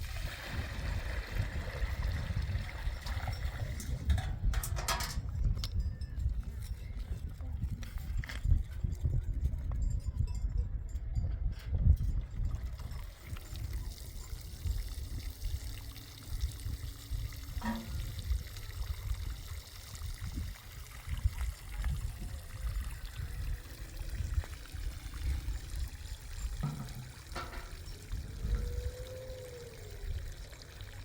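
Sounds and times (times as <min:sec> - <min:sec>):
water pouring: 0:00.0 - 0:05.2, 0:12.4 - 0:31.0
short knocks: 0:26.6 - 0:27.8.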